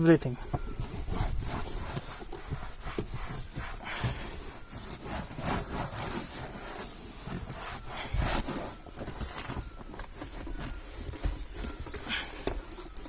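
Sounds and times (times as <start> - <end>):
cloth rubbing on trim: 0.7 - 9.2.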